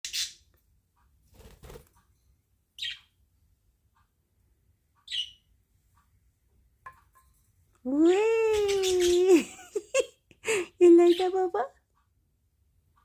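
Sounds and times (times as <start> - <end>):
budgerigars chirping: 2.8 - 3.1, 5.0 - 5.5
soft bird peeps: 2.8 - 3.2, 5.0 - 5.6.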